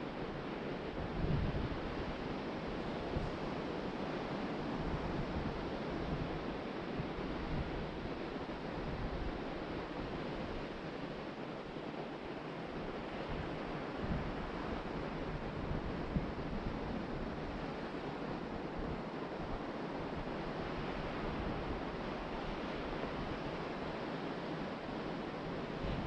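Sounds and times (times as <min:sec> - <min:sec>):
wind gusting on microphone: 0:01.0 - 0:03.8, 0:25.5 - 0:26.0.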